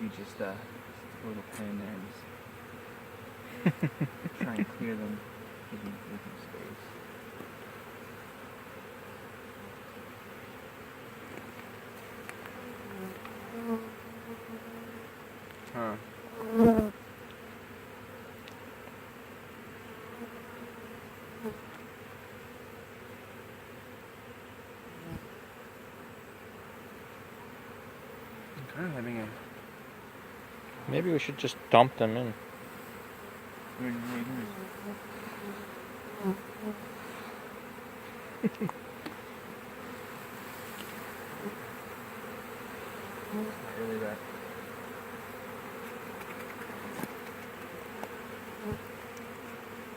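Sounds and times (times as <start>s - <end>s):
bee swarm buzzing: 0.0s - 49.9s
bees flying past: 0.0s - 49.9s.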